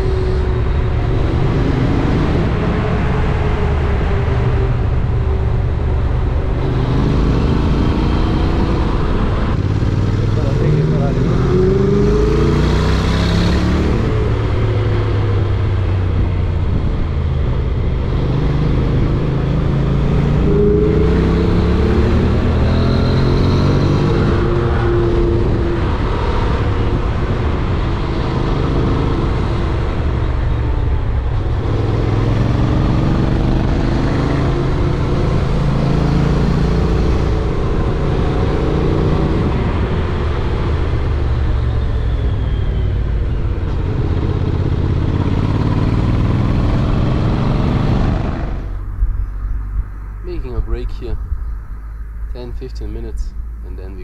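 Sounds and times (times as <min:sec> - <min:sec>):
motorcycle engine accelerating: 0:00.0 - 0:54.0
wind and road rumble: 0:00.0 - 0:54.0.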